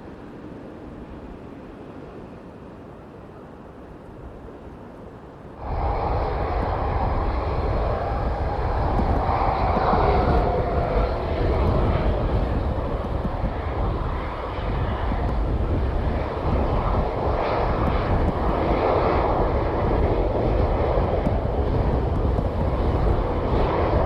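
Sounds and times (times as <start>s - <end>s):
airplane engines running: 0.0s - 24.0s.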